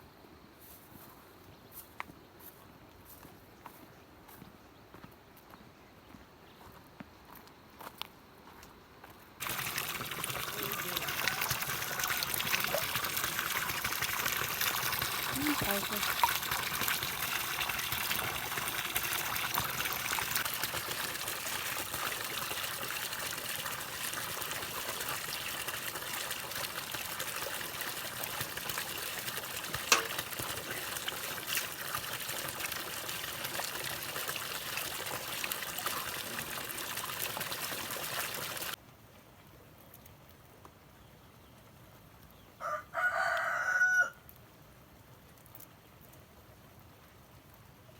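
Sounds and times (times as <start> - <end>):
trickling running water: 9.4 - 38.8
rooster crowing: 42.6 - 44.2.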